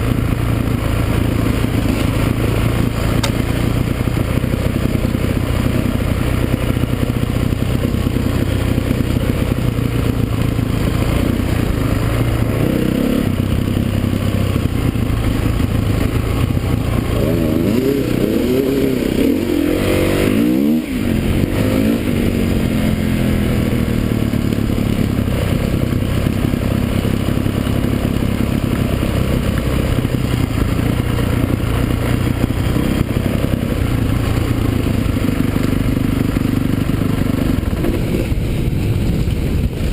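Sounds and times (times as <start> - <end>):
motocross engines revving: 0.0 - 38.0
motorcycle passing by: 0.0 - 39.9.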